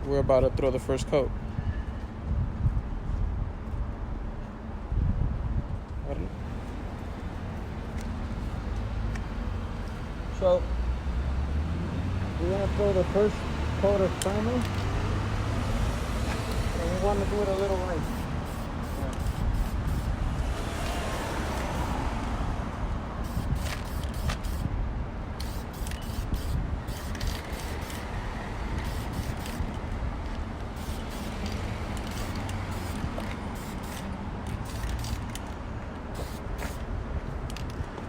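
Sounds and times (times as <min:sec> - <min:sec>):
wind buffeting microphone: 0:01.3 - 0:06.4, 0:17.9 - 0:34.8
aerosol can spraying bursts: 0:17.9 - 0:20.2, 0:23.2 - 0:24.7, 0:25.4 - 0:28.2, 0:28.8 - 0:29.6, 0:30.7 - 0:35.3, 0:36.1 - 0:36.8.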